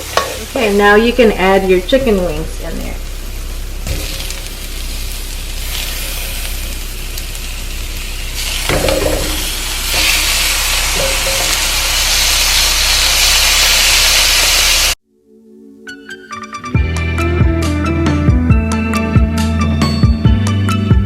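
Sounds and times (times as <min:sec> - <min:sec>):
chicken wings sizzling in oil: 0:00.0 - 0:15.0
soft music: 0:15.1 - 0:21.0.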